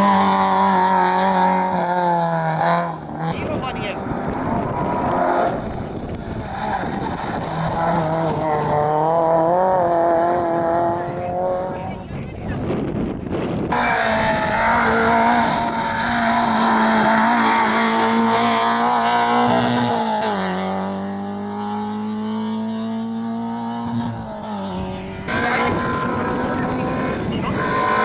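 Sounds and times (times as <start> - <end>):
another car engine: 0.0 - 28.0
rally car engine high revs: 0.0 - 28.0.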